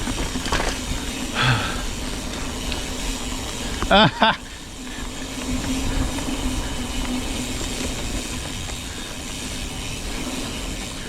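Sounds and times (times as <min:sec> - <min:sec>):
bike tyre rumble on dirt: 0:00.0 - 0:11.0
wind on microphone: 0:00.0 - 0:11.0.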